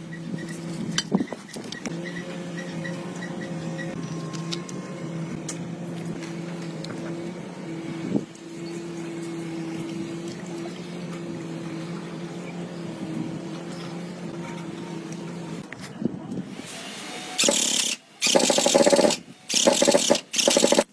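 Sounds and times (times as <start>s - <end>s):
motor humming: 16.9s - 20.9s.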